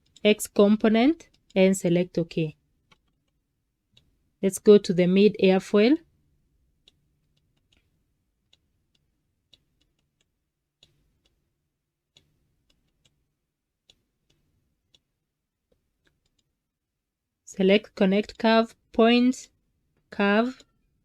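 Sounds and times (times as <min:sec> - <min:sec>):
computer mouse clicks: 0:02.9 - 0:04.1, 0:06.8 - 0:07.9, 0:08.5 - 0:11.4, 0:12.1 - 0:13.2, 0:13.8 - 0:15.1, 0:15.7 - 0:16.5.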